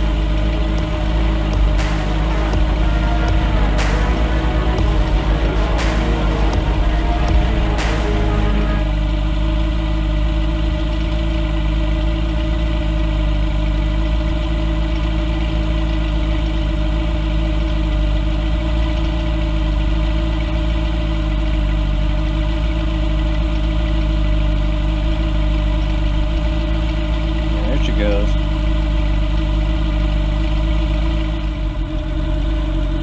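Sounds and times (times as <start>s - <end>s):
engine idling with low hum: 4.7s - 33.0s.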